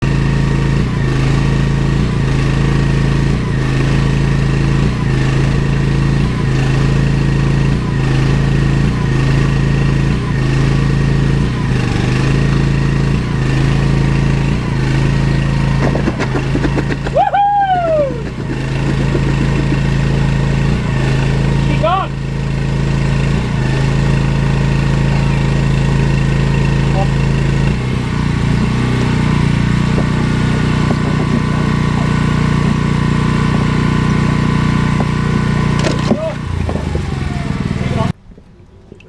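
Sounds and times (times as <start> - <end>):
engine hum pulsing: 0.0 - 39.0
high squeal falling in pitch: 17.1 - 18.2.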